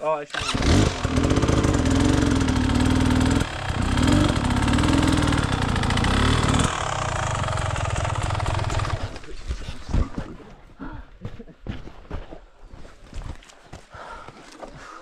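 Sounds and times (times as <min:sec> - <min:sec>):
dirt bike engine revving: 0:00.3 - 0:09.2.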